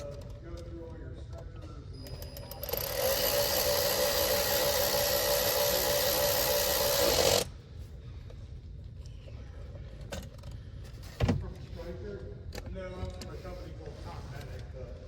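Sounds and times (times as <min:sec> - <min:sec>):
electric power tool motor running: 0:02.5 - 0:07.5.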